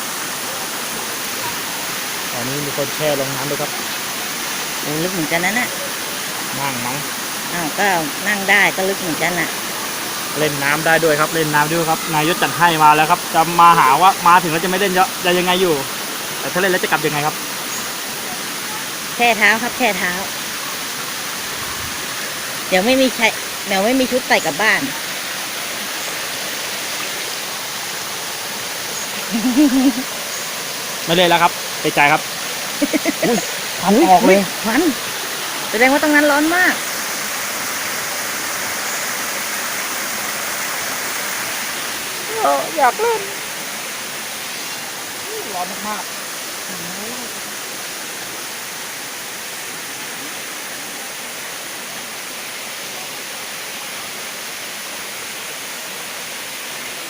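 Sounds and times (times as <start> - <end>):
water rushing over rocks: 0.0 - 57.0
person speaking: 10.4 - 17.4, 29.0 - 30.1, 32.8 - 35.0, 42.2 - 43.5, 45.2 - 46.1.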